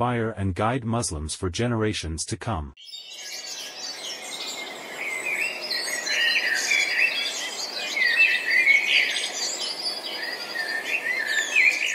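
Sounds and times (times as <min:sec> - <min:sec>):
birds chirping and singing: 0:02.8 - 0:11.9.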